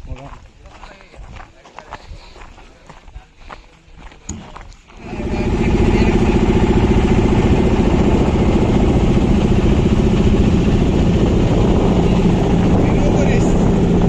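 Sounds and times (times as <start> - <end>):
boat engine running: 4.9 - 14.0.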